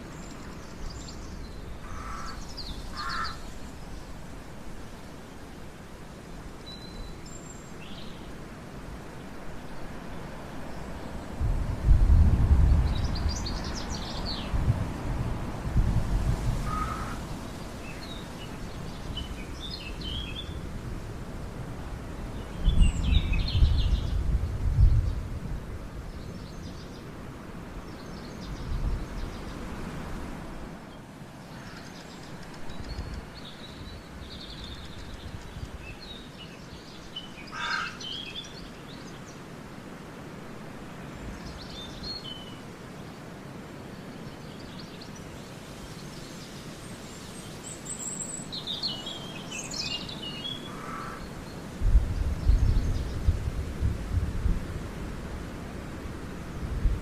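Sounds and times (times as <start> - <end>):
small birds chirping: 43.9 - 53.3.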